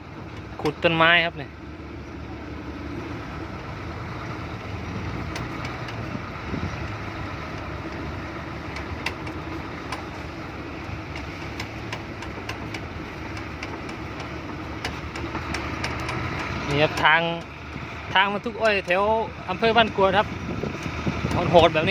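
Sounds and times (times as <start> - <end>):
truck diesel engine running: 0.0 - 21.9
sharp clicks: 8.7 - 10.2, 11.1 - 17.6.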